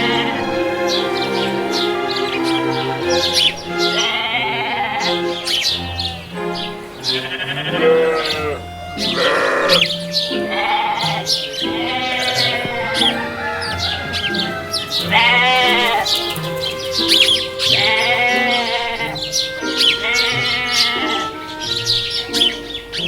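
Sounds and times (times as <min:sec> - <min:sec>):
sheep bleating: 0:00.0 - 0:00.6, 0:03.9 - 0:06.2, 0:07.0 - 0:16.2, 0:17.1 - 0:21.4
background music: 0:00.0 - 0:23.0.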